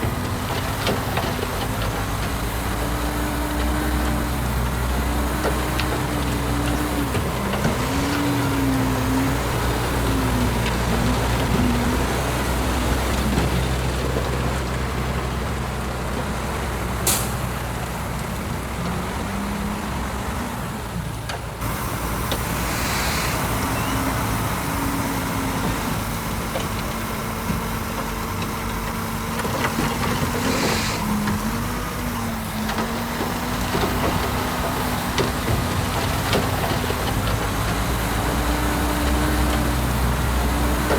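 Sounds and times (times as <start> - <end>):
heavy diesel machinery running: 0.0 - 40.9
short hisses: 22.4 - 24.3, 30.2 - 31.5.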